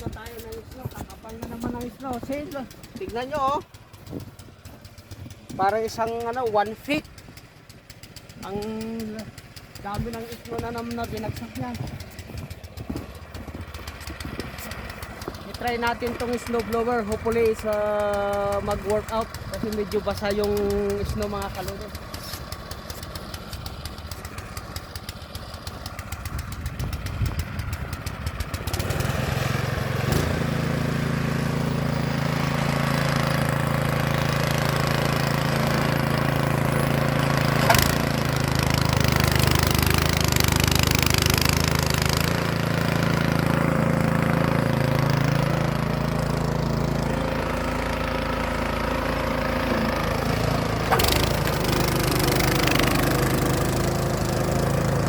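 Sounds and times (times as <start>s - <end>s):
snow blower engine running: 0.0s - 55.0s.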